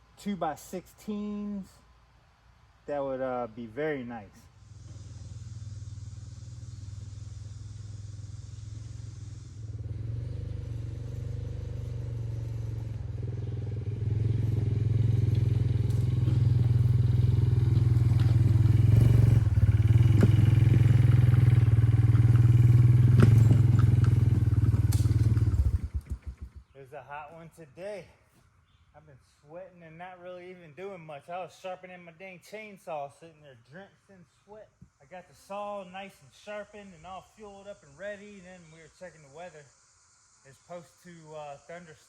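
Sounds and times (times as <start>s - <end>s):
small engine running: 4.5s - 26.7s.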